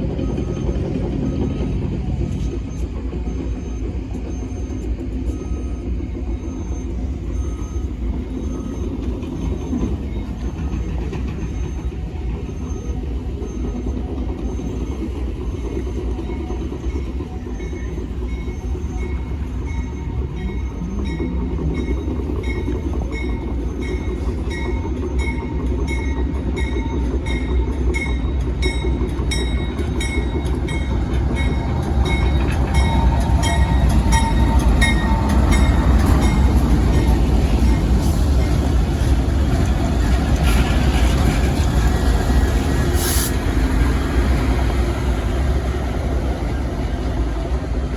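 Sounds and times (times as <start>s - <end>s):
train rumbling along track: 0.0s - 47.9s
train wheels ticking beat: 0.0s - 47.9s.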